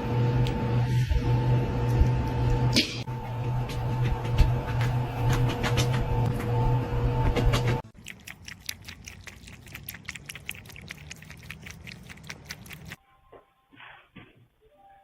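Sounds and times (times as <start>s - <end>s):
pet animal chewing: 7.6s - 13.0s.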